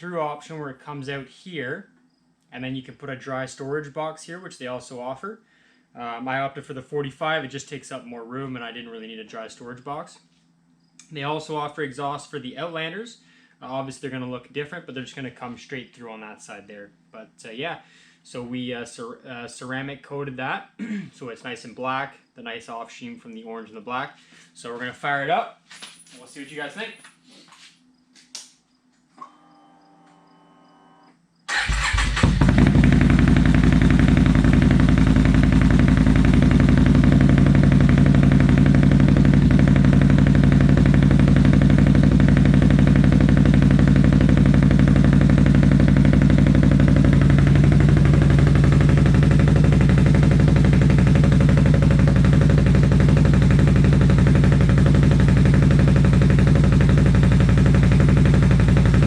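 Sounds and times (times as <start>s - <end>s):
atv engine starting and idling: 31.5s - 59.0s.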